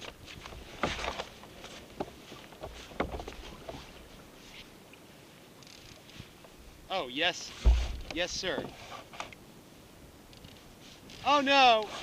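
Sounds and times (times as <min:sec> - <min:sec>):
water splashing: 0:07.4 - 0:08.6
knocks against kayak hull: 0:07.6 - 0:08.7.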